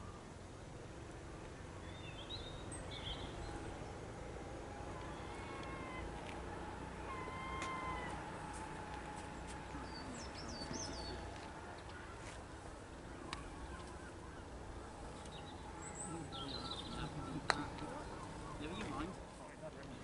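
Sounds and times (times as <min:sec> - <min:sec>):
birds whistled calls: 0:01.8 - 0:03.9, 0:07.0 - 0:08.7, 0:09.4 - 0:12.2, 0:12.9 - 0:19.3
high bird chirps: 0:13.2 - 0:19.1.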